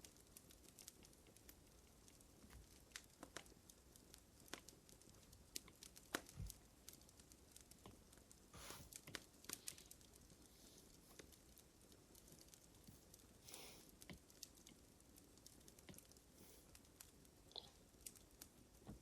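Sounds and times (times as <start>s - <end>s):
fire crackling: 0.0s - 19.0s
short hiss: 8.6s - 8.9s, 13.5s - 13.9s.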